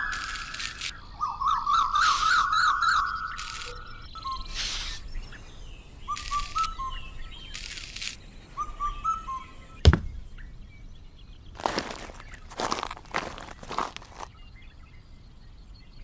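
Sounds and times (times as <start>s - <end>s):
rustling hiss: 0.0s - 1.0s, 1.9s - 2.6s, 3.3s - 8.6s
bird chirping: 0.0s - 12.5s
sharp knock: 9.9s - 10.3s.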